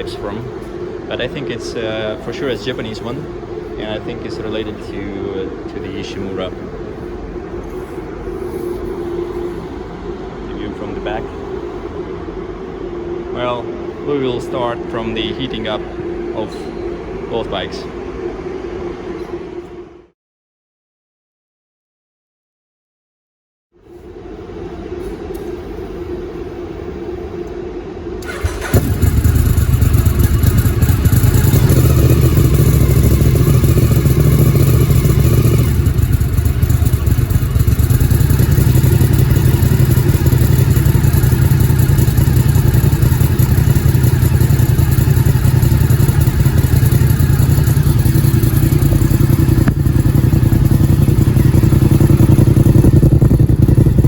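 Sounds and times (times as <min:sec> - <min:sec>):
quiet engine running: 0:00.0 - 0:19.9, 0:24.0 - 0:54.0
motorcycle engine starting and idling: 0:28.2 - 0:54.0.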